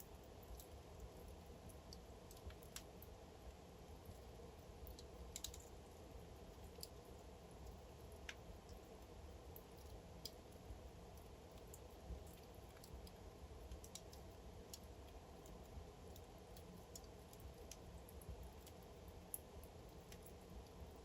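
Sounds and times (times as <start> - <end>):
low hum of burning logs: 0.0 - 21.0
fire crackling and popping: 4.2 - 5.7.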